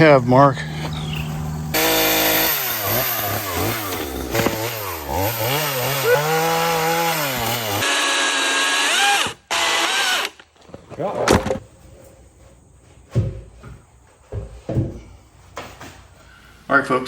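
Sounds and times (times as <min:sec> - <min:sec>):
power tool whine: 0:00.7 - 0:10.4
chainsaw cutting wood: 0:00.7 - 0:10.6.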